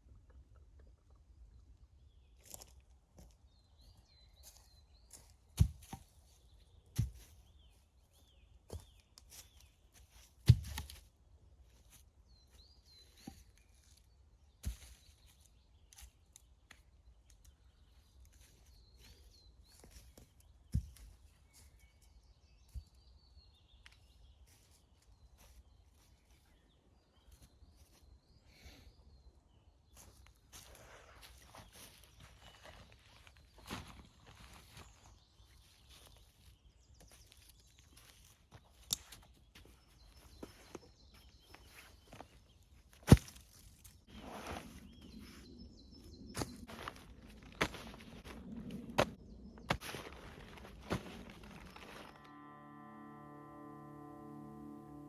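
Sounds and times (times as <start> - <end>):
small birds chirping: 0.6 - 52.3.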